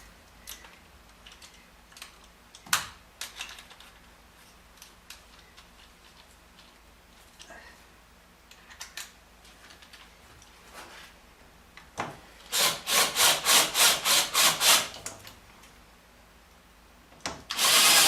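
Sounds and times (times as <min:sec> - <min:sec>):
power drill drilling metal: 0:12.5 - 0:14.9, 0:17.5 - 0:18.0.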